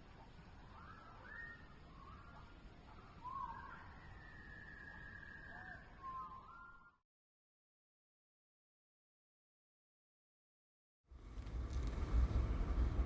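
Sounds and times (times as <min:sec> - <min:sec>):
faint bird whistles: 0:00.2 - 0:07.0.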